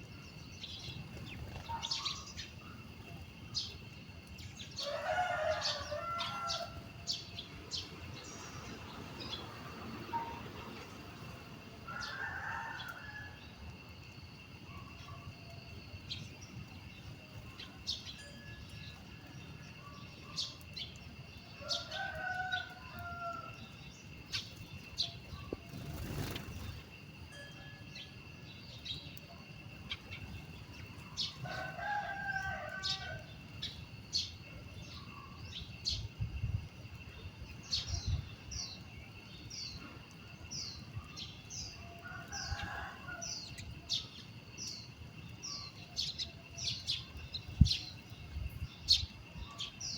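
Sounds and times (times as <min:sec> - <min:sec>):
small birds chirping: 0:00.0 - 0:12.2, 0:14.7 - 0:42.9
rooster crowing: 0:04.8 - 0:06.8, 0:11.9 - 0:13.4, 0:21.6 - 0:23.6, 0:31.4 - 0:33.3, 0:42.0 - 0:43.5.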